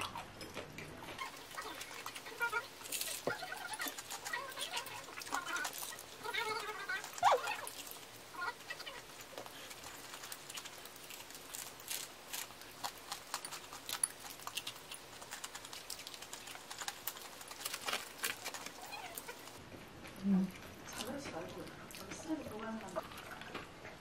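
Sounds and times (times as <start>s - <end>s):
crunchy chewing of fried chicken: 0.0s - 24.0s.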